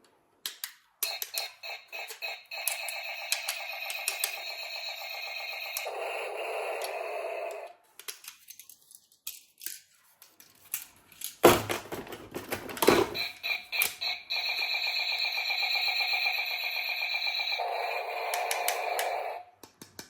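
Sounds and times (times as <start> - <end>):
clicks and rattles of handling: 8.0 - 13.2.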